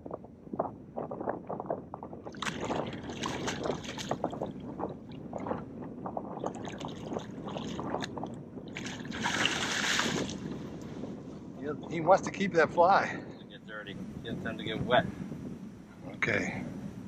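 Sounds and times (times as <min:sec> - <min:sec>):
fish splashing in water: 0:08.7 - 0:10.4.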